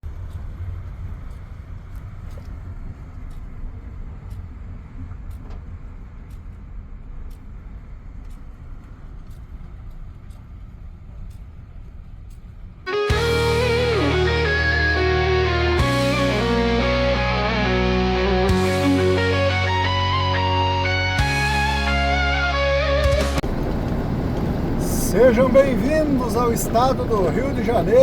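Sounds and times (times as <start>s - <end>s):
heavy truck rumbling: 12.9s - 28.0s.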